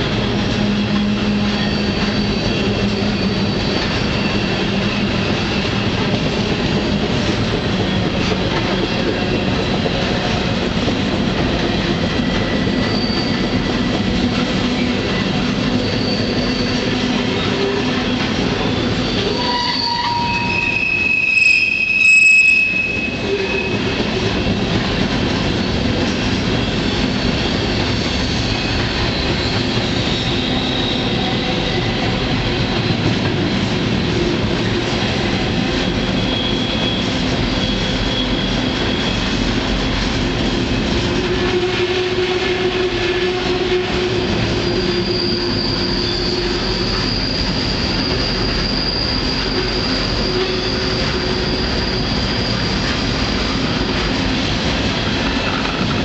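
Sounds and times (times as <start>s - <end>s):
train wheels rumbling and rattling: 0.0s - 56.0s
high-pitched wheel squeals: 0.3s - 6.1s, 12.5s - 24.6s, 25.4s - 33.0s, 35.5s - 39.4s, 42.9s - 53.6s.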